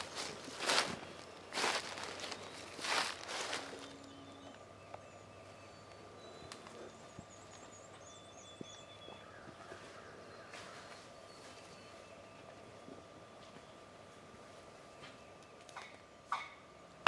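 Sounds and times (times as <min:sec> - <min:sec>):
faint high tone: 0:03.5 - 0:04.6.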